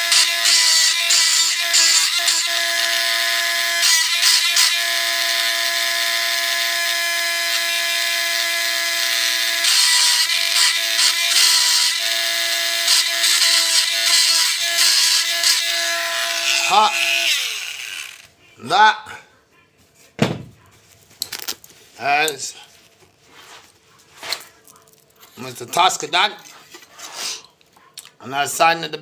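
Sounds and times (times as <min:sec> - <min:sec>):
engraving tool whine: 0:00.0 - 0:18.3.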